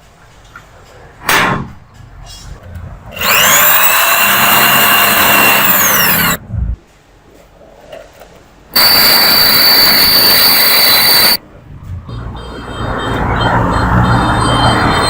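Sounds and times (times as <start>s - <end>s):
rough noise with low hum: 0.0s - 12.4s
metalworking tool whining: 3.2s - 6.4s, 8.8s - 11.4s.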